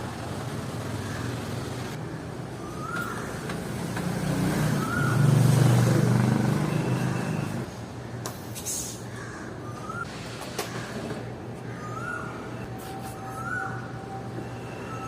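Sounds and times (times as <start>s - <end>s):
vehicle engine hum passing by: 3.6s - 7.7s.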